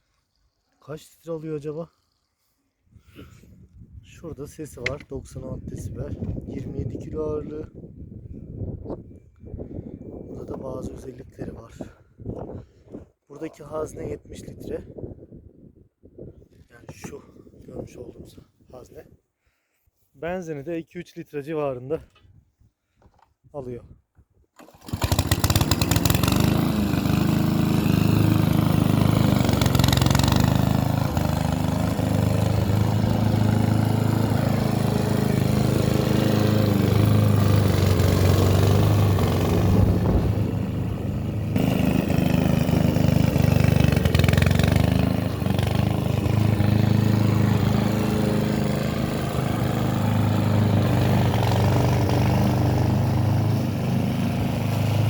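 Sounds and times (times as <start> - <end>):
lawn mower engine running: 24.6 - 55.0.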